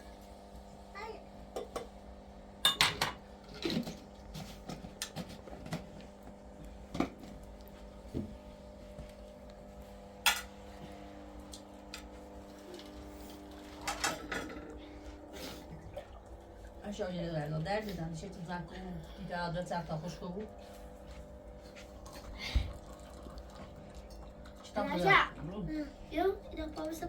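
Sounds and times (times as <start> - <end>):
steady low hum: 0.0 - 27.0
dishes and cutlery clinking: 2.6 - 3.9.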